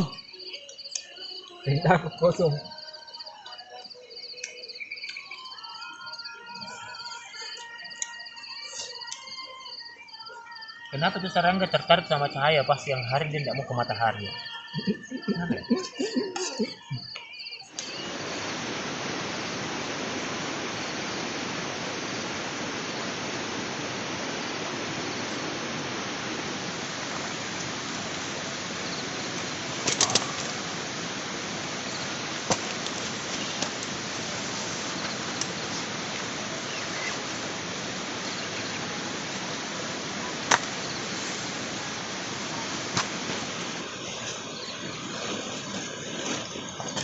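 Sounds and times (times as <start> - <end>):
rushing water roar: 17.8 - 47.0.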